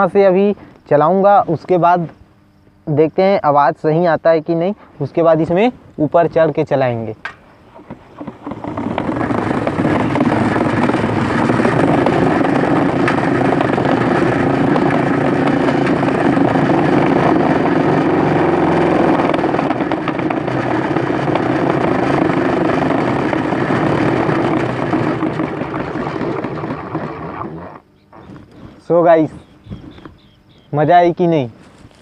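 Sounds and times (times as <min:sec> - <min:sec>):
balloons rattling on bicycle spokes: 0:07.9 - 0:27.6.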